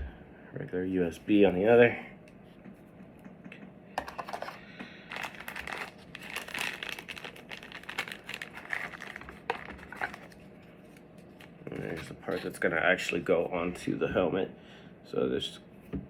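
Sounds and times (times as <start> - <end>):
plastic packaging crinkling: 5.0 - 12.4.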